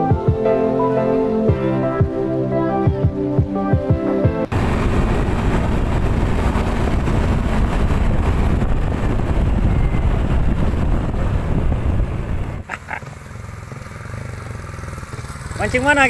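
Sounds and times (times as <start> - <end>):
motorcycle engine rumbling: 4.3 - 16.0.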